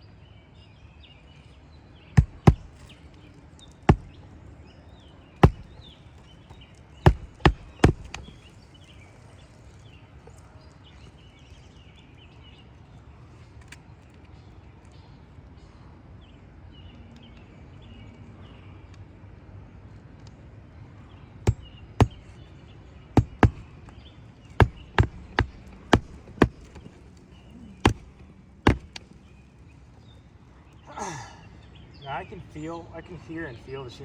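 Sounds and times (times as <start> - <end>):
faint birds chirping: 0.0 - 34.0
nails hammered into shingles: 2.2 - 3.1, 3.7 - 4.4, 5.4 - 8.6, 21.5 - 22.4, 23.2 - 29.3.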